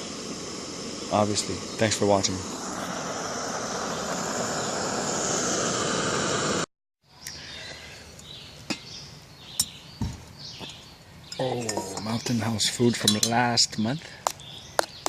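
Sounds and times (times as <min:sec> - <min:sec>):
steady rushing hiss: 0:00.0 - 0:06.7, 0:10.1 - 0:15.0
outdoor ambience: 0:00.0 - 0:15.0.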